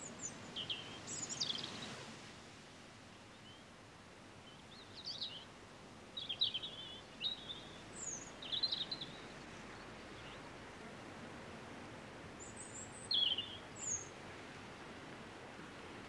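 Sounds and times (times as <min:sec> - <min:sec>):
faint steady hiss: 0:00.0 - 0:16.0
songbird chirping: 0:00.0 - 0:16.0.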